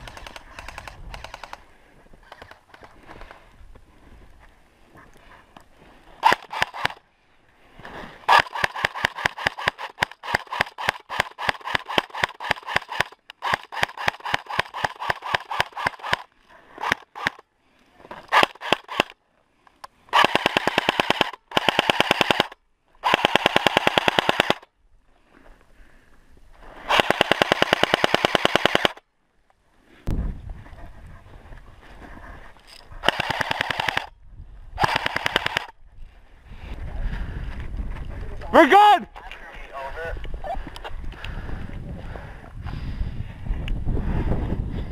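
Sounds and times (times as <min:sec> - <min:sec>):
airsoft guns firing: 0:06.2 - 0:07.0, 0:08.3 - 0:17.4, 0:18.3 - 0:19.2, 0:20.1 - 0:24.6, 0:26.9 - 0:29.0, 0:33.0 - 0:34.1, 0:34.8 - 0:35.7.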